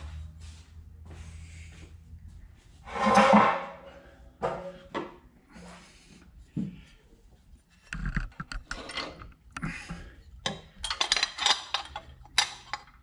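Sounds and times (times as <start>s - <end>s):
metal parts knocking: 10.4s - 13.0s.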